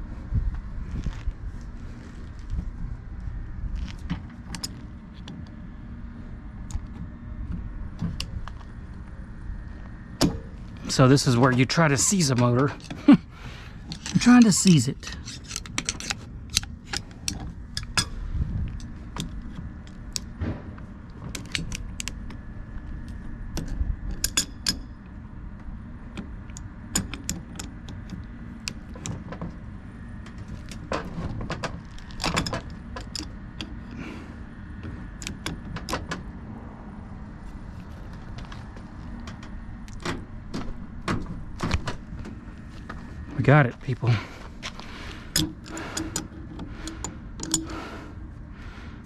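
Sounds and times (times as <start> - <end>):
hand tools clinking on metal: 13.9 - 18.1.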